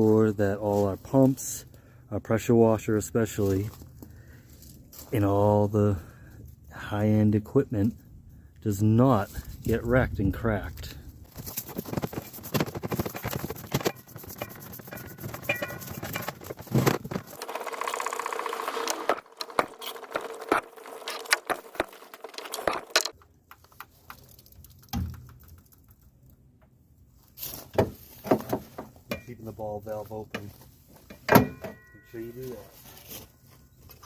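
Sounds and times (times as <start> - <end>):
hose reel clicking and rattling: 11.6 - 24.3.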